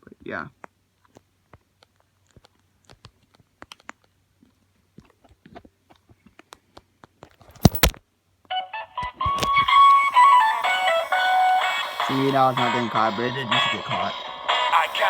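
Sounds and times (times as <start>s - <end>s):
sharp plastic clacks: 6.4s - 8.0s
toy playing a song: 9.0s - 15.0s.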